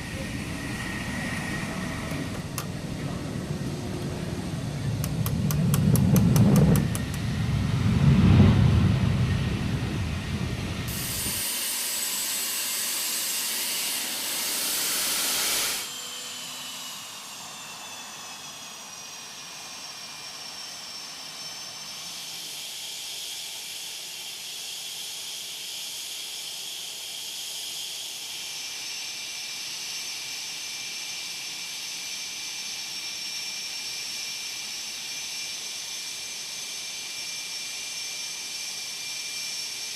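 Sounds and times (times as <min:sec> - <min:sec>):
jet engine rumble: 0:00.0 - 0:11.4
loud rushing hiss: 0:00.0 - 0:18.8
high turbine whine: 0:00.0 - 0:39.9.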